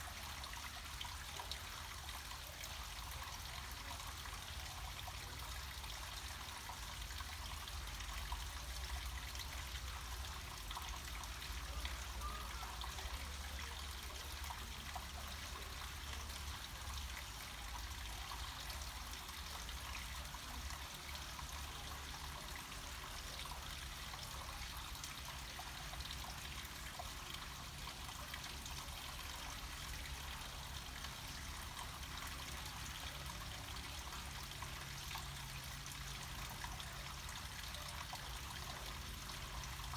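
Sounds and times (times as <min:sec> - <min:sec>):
water trickling down slope: 0:00.0 - 0:39.9.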